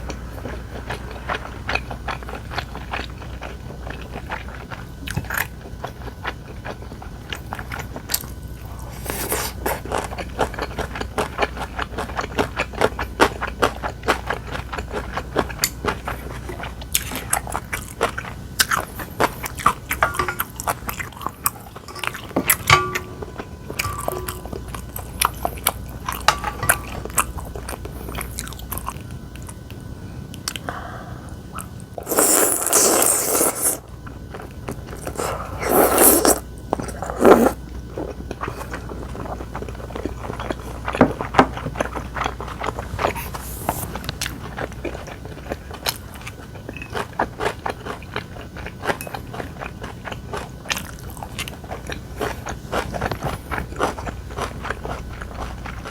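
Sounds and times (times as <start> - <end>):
chewing and crunching food: 0.0 - 30.8, 31.5 - 55.9
slurping noodles: 8.7 - 10.0, 32.0 - 33.8, 35.0 - 38.7.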